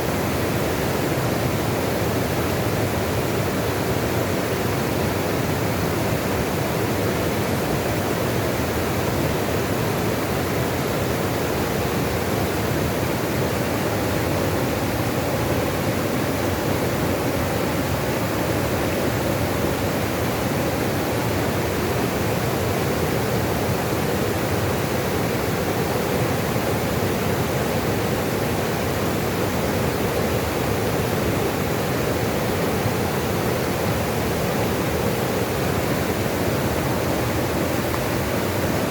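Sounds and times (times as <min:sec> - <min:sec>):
running water rushing: 0:08.2 - 0:38.9.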